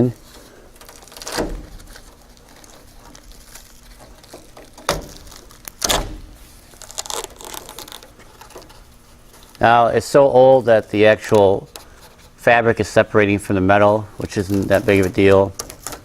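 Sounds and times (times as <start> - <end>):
rubber channel tearing and scraping: 0.0 - 12.4, 14.2 - 16.0.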